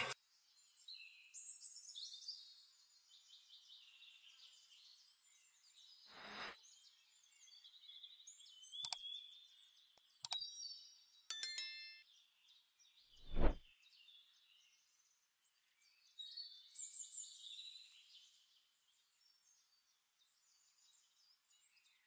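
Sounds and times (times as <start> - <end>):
faint birdsong chirps and trills: 0.0 - 22.0
brief swoosh: 13.2 - 13.6.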